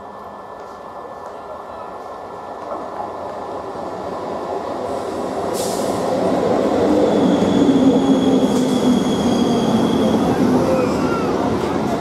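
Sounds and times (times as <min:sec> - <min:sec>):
train wheels rumbling on rail: 0:00.2 - 0:12.0
high wheel squeal: 0:07.1 - 0:11.5.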